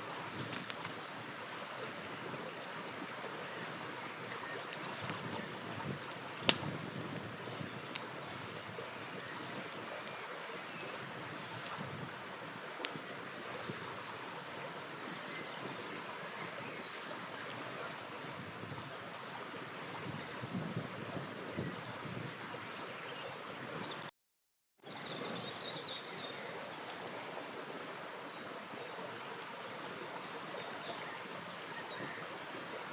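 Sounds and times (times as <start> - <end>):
river flowing: 0.0 - 24.1, 24.8 - 32.9
campfire crackling and popping: 0.3 - 1.0, 4.6 - 8.5.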